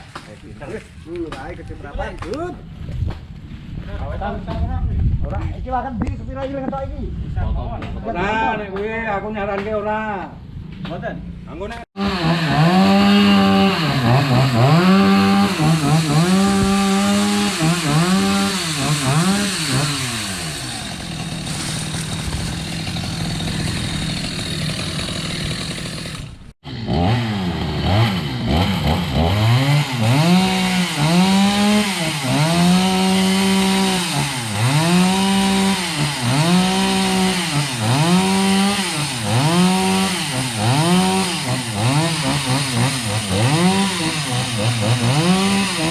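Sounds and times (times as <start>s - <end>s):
chainsaw revving: 12.0s - 45.9s.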